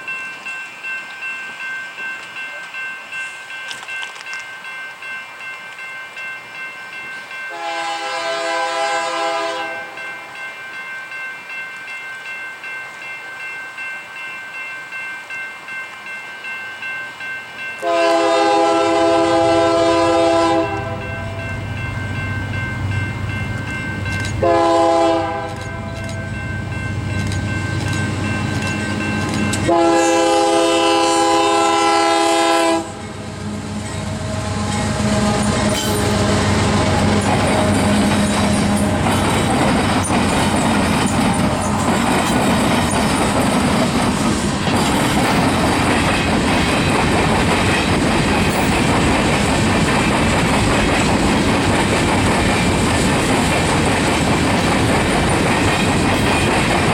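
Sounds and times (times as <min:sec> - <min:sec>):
locomotive air horn: 0:07.5 - 0:10.0, 0:17.8 - 0:21.4, 0:24.4 - 0:26.0, 0:29.6 - 0:33.1, 0:34.0 - 0:37.2
locomotive engine rumble: 0:32.8 - 0:56.9.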